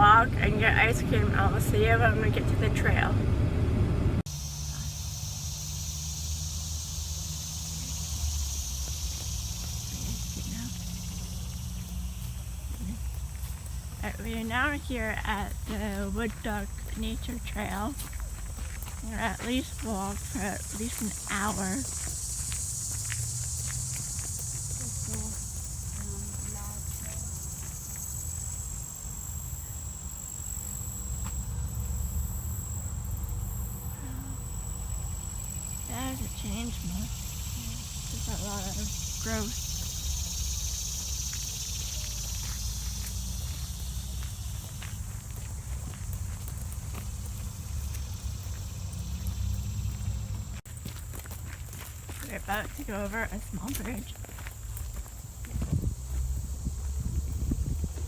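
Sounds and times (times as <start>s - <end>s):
insects chorus: 0.0s - 3.1s, 4.3s - 58.0s
low rumble: 0.0s - 4.3s.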